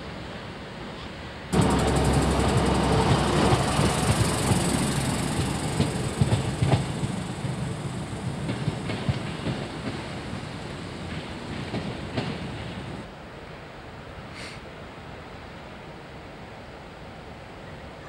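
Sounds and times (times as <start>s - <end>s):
train rumbling: 1.5s - 13.1s
wheel clicks over rail joints: 1.6s - 13.0s.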